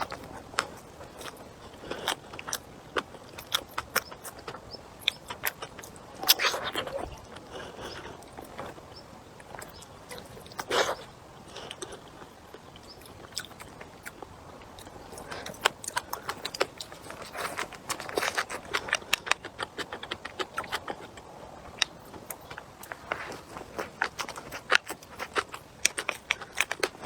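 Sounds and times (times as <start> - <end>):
person chewing and crunching: 0.0 - 27.0
sharp clicks and crunches: 14.8 - 27.0.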